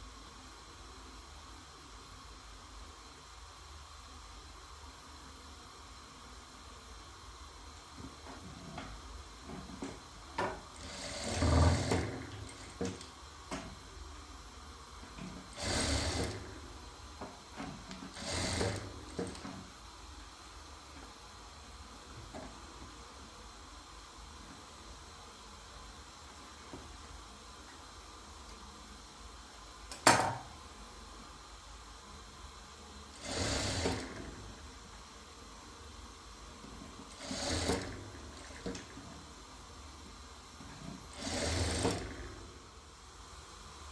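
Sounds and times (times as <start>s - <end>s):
sewing machine running: 9.6s - 13.8s, 15.2s - 19.7s, 33.1s - 34.8s, 36.6s - 39.3s, 40.6s - 42.7s.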